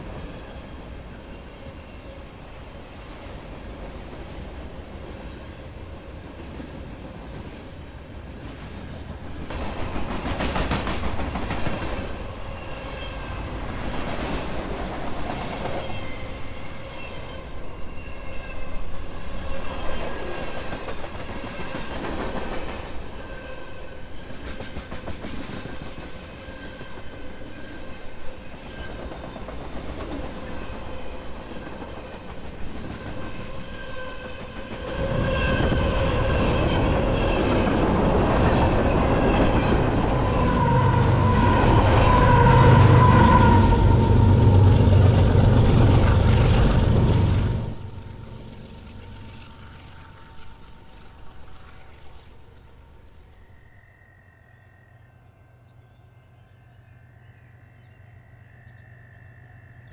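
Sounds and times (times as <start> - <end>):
train wheels clicking over rail joints: 8.4 - 16.4, 24.2 - 35.2.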